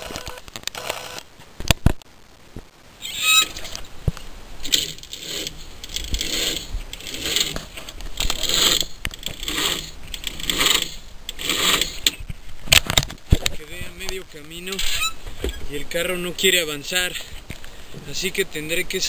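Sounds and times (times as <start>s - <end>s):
engine metallic clicking and rattling: 4.6s - 12.2s.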